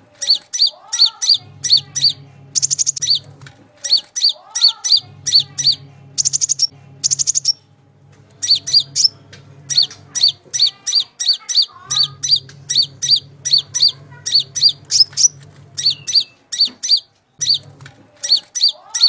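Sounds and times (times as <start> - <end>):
rattling bird trills: 0.1 - 7.6, 8.4 - 19.0
bird chirping: 0.1 - 7.7, 8.4 - 19.0
low hum: 1.1 - 11.0, 11.7 - 16.8.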